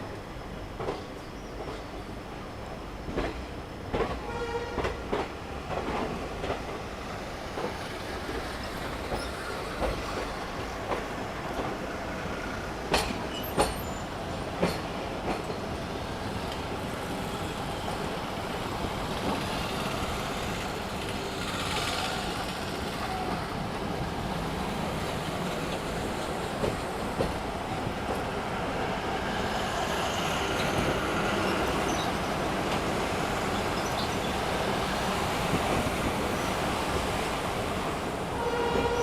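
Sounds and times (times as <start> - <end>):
train wheels rolling on rail: 0.0 - 39.0
wheels clacking over rail joints: 12.8 - 15.8.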